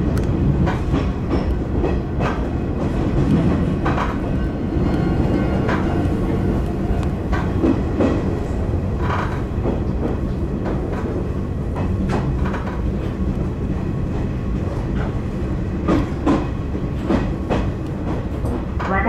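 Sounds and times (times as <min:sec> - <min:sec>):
train low rumble: 0:00.0 - 0:19.0
wheels clicking over rail joints: 0:07.0 - 0:13.4.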